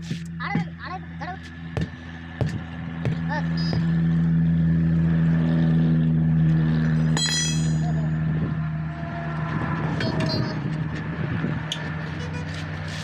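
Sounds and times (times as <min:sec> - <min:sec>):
sharp metallic clink: 0:07.1 - 0:08.2.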